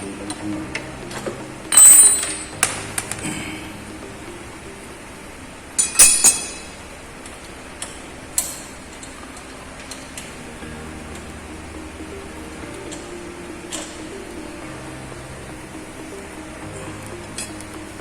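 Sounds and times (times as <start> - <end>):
metal clinks and clanks: 1.7 - 2.5.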